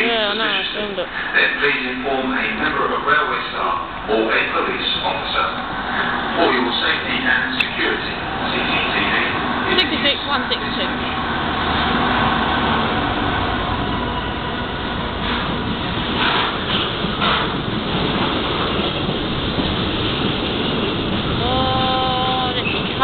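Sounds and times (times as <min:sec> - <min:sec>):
freight train passing: 0:00.0 - 0:23.0.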